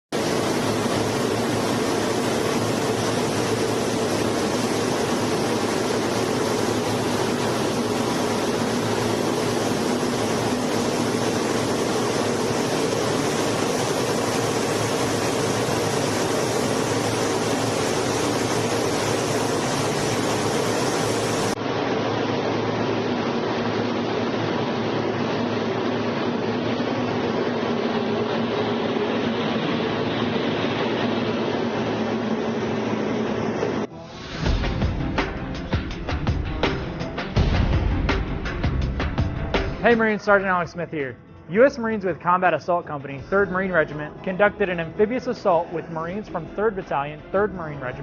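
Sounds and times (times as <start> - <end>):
jet engine rush: 0.1 - 38.3
low hum: 0.2 - 42.2.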